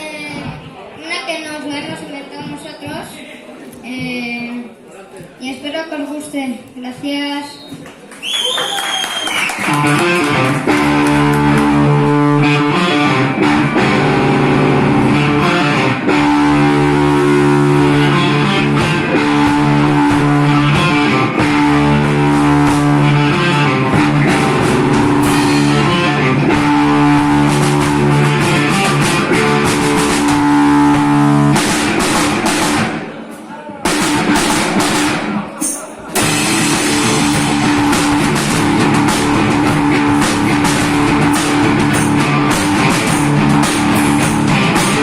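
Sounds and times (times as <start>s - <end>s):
drum kit beat: 9.3s - 45.0s
electric guitar chords: 9.6s - 33.1s, 36.2s - 45.0s.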